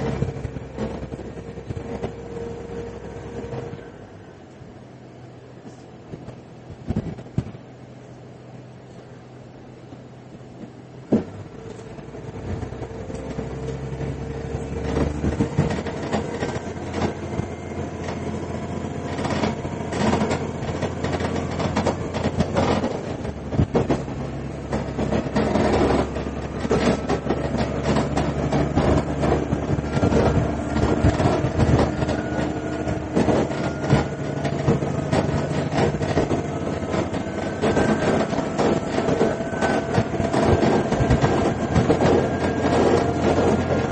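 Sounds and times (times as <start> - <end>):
railcar engine drone: 0.0 - 43.9
wheel clicks over rail joints: 10.6 - 43.9.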